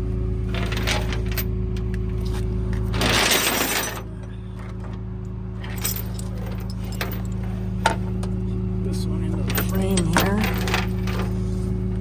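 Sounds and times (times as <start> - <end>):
diesel engine idling: 0.0 - 12.0
metal clanks: 0.5 - 5.0, 5.6 - 8.4, 9.3 - 11.4.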